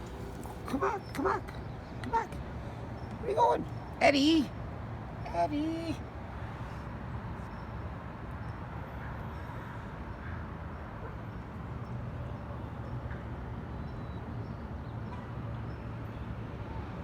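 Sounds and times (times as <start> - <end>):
distant traffic rumble: 0.0 - 7.4.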